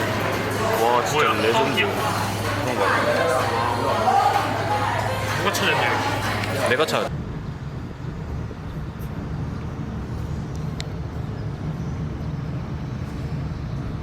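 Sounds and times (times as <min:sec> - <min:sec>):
car engine and tyres rumbling: 0:05.0 - 0:14.0.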